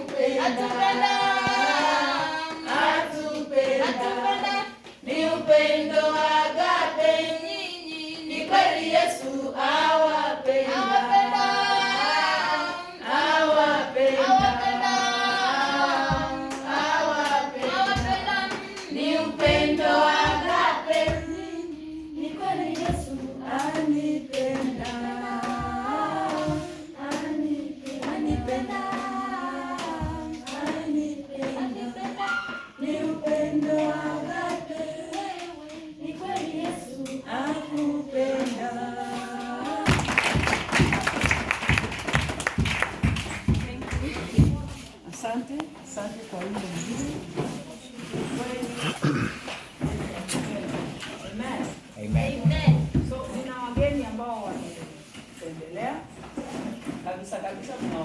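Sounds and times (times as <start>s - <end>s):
children singing: 0.0s - 41.0s
hand clapping: 36.3s - 44.6s.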